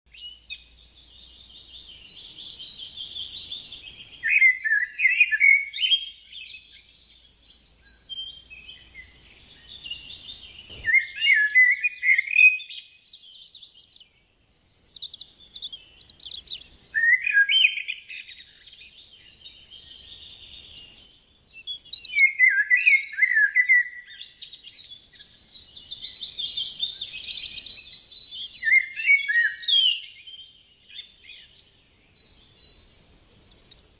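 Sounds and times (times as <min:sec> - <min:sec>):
bird chattering and warbling: 0:09.7 - 0:18.4, 0:33.4 - 0:33.9.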